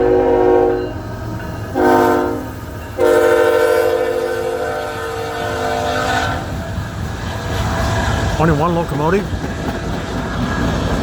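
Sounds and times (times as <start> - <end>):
locomotive air horn: 0.0 - 1.0, 1.7 - 6.6
train rumble: 0.0 - 11.0.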